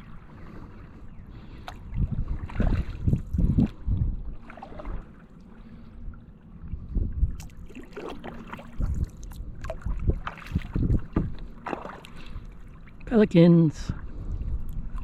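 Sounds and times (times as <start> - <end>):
paddle strokes splashing in water: 0.0 - 6.2, 7.3 - 13.1
wind rumbling on microphone: 0.0 - 15.0.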